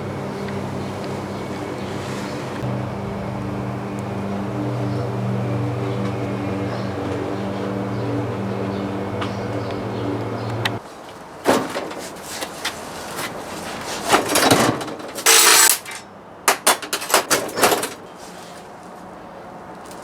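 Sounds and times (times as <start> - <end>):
machine hum: 0.0 - 10.8.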